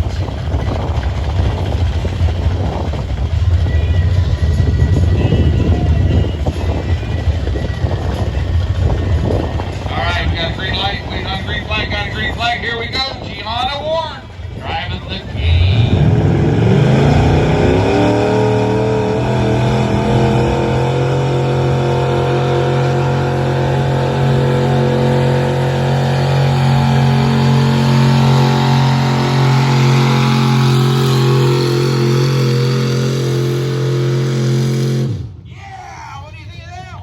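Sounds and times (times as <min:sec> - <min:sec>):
engine at high revs under load: 0:15.5 - 0:35.4.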